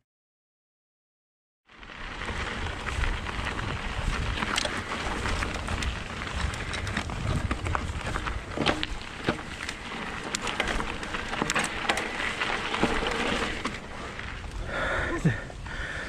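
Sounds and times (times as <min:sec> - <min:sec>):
tyres rolling over gravel: 0:01.7 - 0:16.0
bike rattling clicks: 0:02.1 - 0:14.6
wind on microphone: 0:02.4 - 0:08.8.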